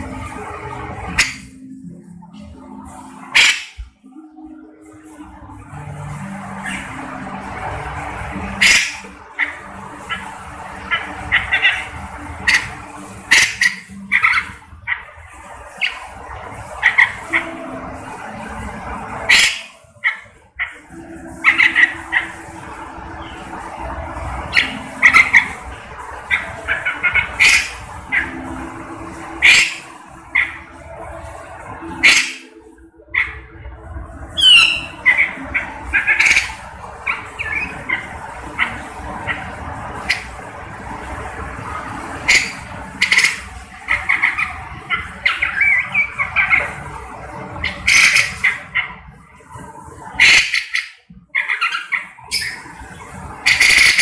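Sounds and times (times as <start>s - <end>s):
bird harsh call notes: 3.1s - 3.8s, 8.4s - 15.1s, 19.1s - 22.4s, 24.5s - 30.7s, 34.4s - 40.4s, 42.1s - 46.9s, 47.5s - 49.0s, 53.4s - 54.0s.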